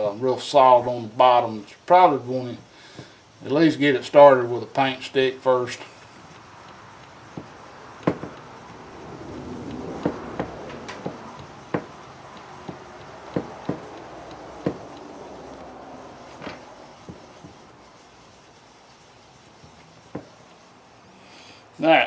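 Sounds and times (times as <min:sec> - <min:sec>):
paint churning and scraping: 0:00.0 - 0:21.8
plastic clicks and knocks: 0:07.4 - 0:08.5.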